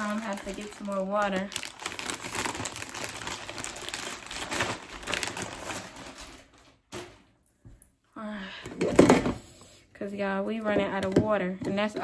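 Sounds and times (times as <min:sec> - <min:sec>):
crinkling and rustling: 0:00.0 - 0:07.4.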